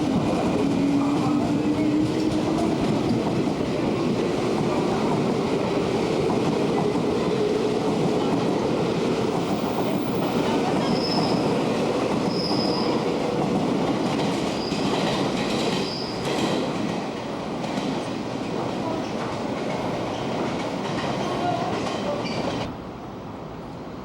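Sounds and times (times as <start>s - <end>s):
high wheel squeals: 12.3s - 13.0s.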